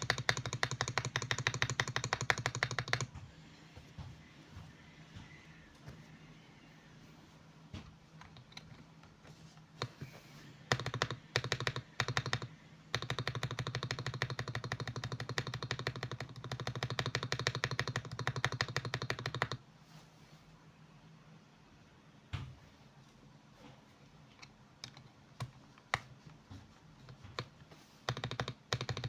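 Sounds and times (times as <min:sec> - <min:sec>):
mechanical keyboard typing: 0:00.0 - 0:03.2, 0:08.2 - 0:09.2, 0:10.7 - 0:19.6, 0:24.4 - 0:26.4, 0:27.0 - 0:29.0.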